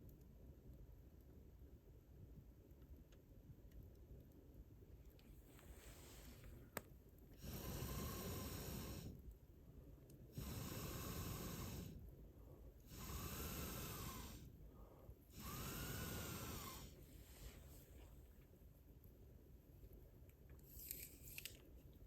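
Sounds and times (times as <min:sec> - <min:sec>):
person blowing air: 0:10.4 - 0:12.0, 0:12.9 - 0:14.5, 0:15.3 - 0:17.6.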